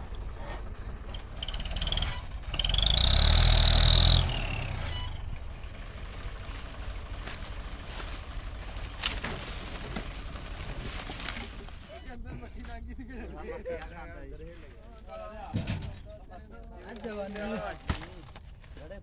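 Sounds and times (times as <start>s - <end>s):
motor revving with high whine: 0.0s - 9.3s
low engine rumble: 0.0s - 19.0s.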